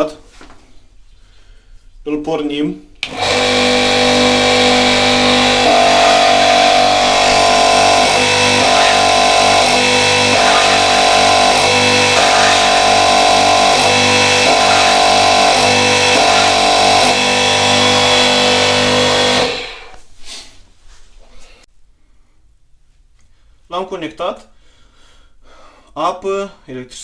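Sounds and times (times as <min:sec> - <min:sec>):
pressure washer motor humming: 0:03.0 - 0:20.0.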